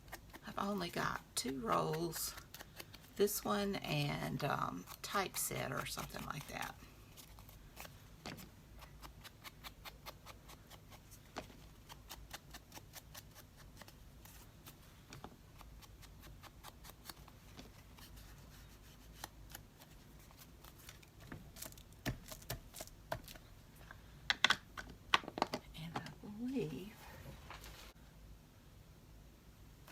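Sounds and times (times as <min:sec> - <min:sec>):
hands handling paper and craft tools: 0:00.0 - 0:26.1.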